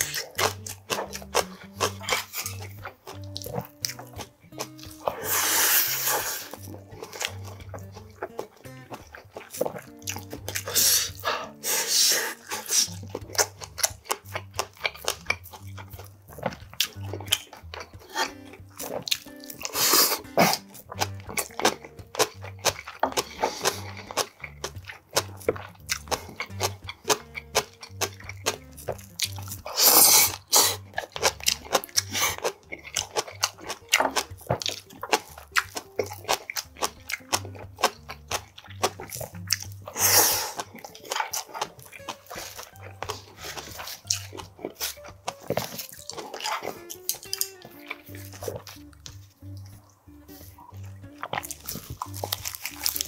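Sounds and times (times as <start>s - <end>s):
faint background music: 0.0s - 53.0s
man chewing and crunching food: 0.0s - 53.0s.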